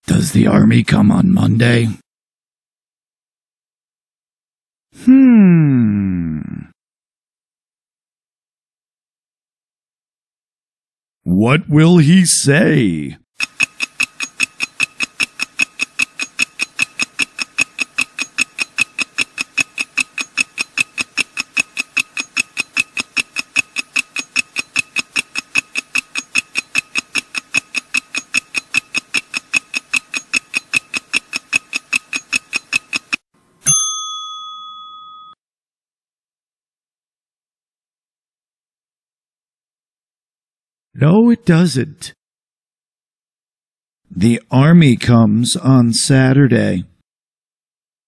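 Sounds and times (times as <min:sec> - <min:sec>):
fast high-pitched ticking: 0:13.4 - 0:33.2
bell ding: 0:33.6 - 0:35.4.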